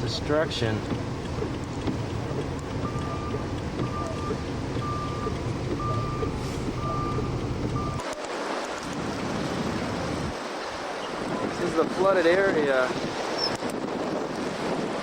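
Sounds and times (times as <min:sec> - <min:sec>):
surf: 0:00.0 - 0:15.0
wind: 0:00.0 - 0:15.0
vehicle reversing alarm beeping: 0:02.8 - 0:08.0.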